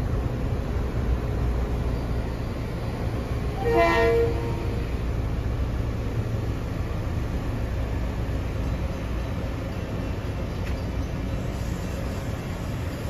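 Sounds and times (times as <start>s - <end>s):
train rumbling past: 0.0s - 13.0s
train horn toot: 3.6s - 4.8s.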